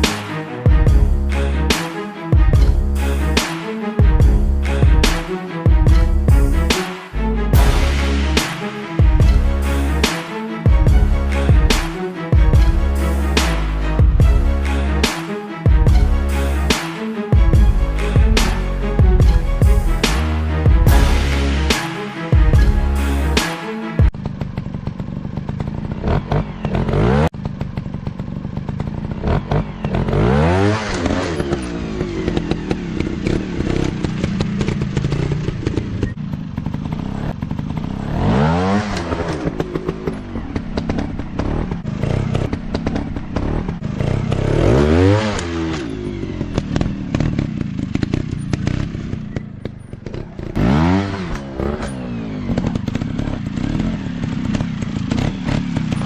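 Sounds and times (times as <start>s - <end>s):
bikes clattering and knocking: 24.1s - 44.6s, 45.4s - 56.0s
dirt bike engines revving: 24.1s - 56.0s.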